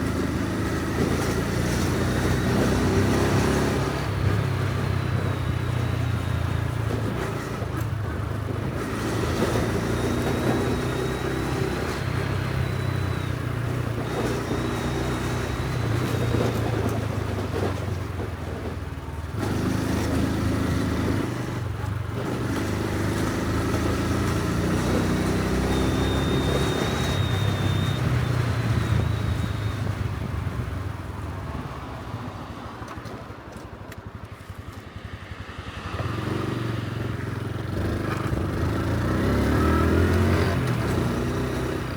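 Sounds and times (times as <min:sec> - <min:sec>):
motorcycle engine revving: 0:00.0 - 0:31.1, 0:34.9 - 0:41.9
road and wind rush: 0:00.0 - 0:41.9.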